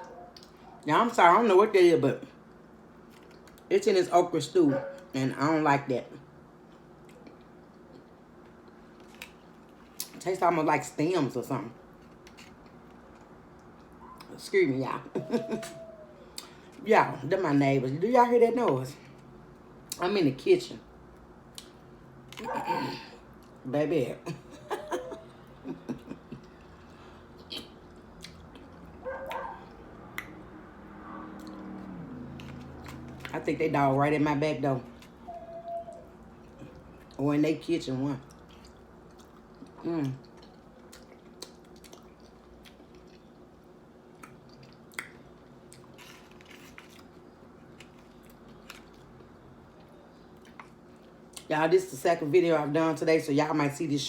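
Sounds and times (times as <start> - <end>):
low steady hum: 0.0 - 54.0
faint dog call: 15.2 - 16.4
person chewing soft food: 25.2 - 33.3, 38.2 - 51.5
wet mouth sounds: 27.4 - 28.7.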